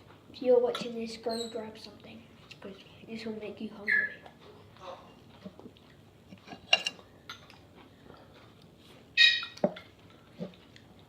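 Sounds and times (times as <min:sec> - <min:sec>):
cutlery clinking on a plate: 0:06.5 - 0:07.6.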